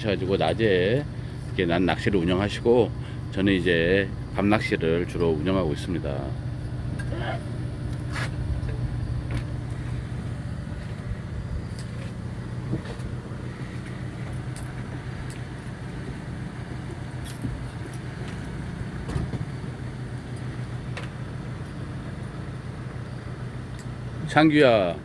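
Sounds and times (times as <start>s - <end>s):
boat engine humming: 0.0s - 25.0s.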